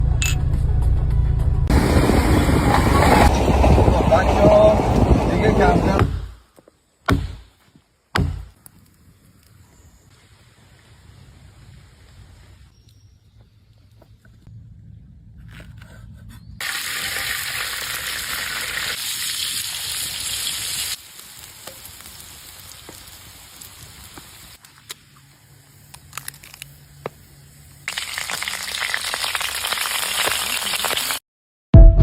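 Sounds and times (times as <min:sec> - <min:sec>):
food sizzling in a pan: 0:16.6 - 0:24.6, 0:27.9 - 0:31.2.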